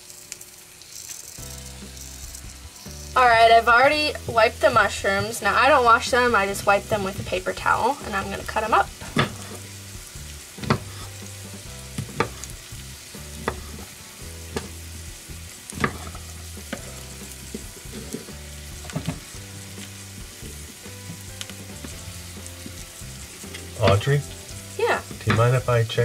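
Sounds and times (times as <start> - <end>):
onions sizzling in oil: 0.0 - 26.0
knife knocking on cutting board: 10.6 - 11.0.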